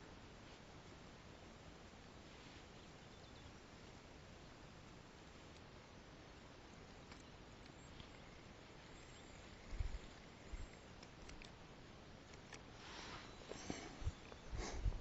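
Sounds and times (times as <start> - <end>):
faint outdoor hiss: 0.0 - 15.0
light ticks: 5.3 - 5.7, 7.0 - 11.6.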